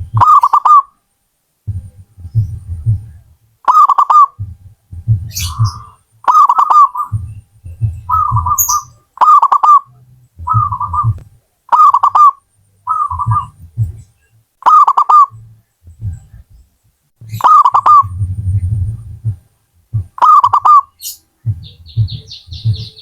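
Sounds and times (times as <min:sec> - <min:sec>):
low rumble: 0:00.0 - 0:00.2, 0:01.6 - 0:03.6, 0:04.4 - 0:06.2, 0:06.9 - 0:09.2, 0:09.9 - 0:11.5, 0:12.5 - 0:14.4, 0:15.3 - 0:20.3, 0:21.4 - 0:23.0
dove cooing: 0:00.0 - 0:00.9, 0:01.7 - 0:16.5, 0:17.2 - 0:19.4, 0:20.0 - 0:23.0.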